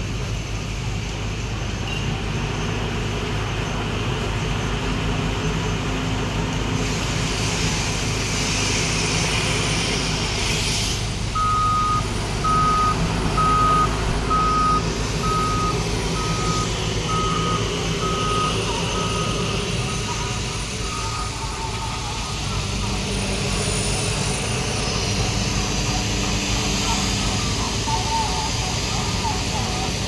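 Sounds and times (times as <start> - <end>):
diesel engine running: 0.0 - 30.0
air hiss: 6.8 - 16.3
reversing alarm beeping: 11.4 - 23.5, 26.5 - 30.0.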